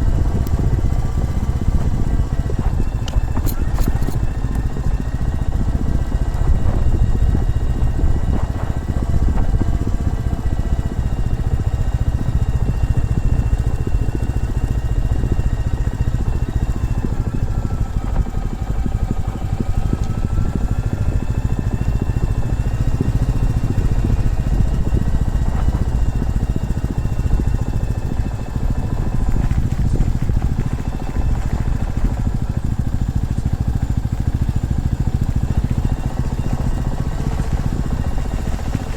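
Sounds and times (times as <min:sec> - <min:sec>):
heavy low rumble: 0:00.0 - 0:15.4, 0:17.0 - 0:38.9
motorcycle engine running: 0:00.0 - 0:38.9.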